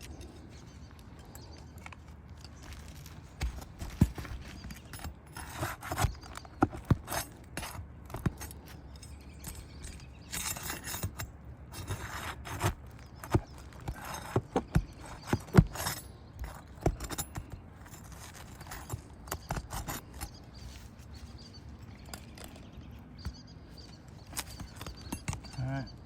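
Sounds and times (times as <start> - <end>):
metallic clinks: 8.4 - 11.9.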